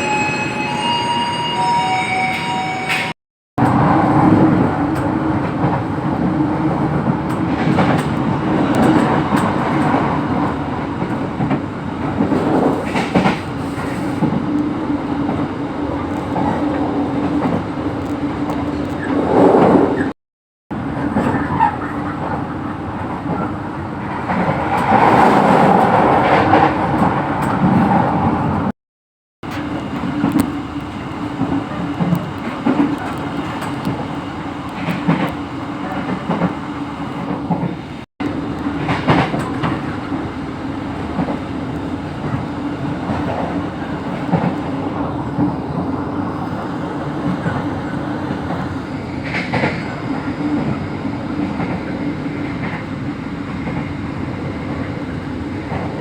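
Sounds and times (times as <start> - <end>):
train wheels clattering on rails: 2.9 - 14.5, 38.6 - 40.3, 47.2 - 56.0.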